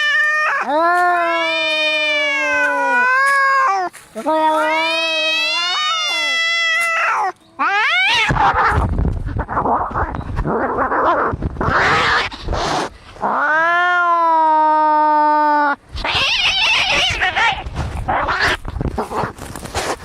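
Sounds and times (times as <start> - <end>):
cat yowling: 0.0 - 8.8, 13.2 - 18.6.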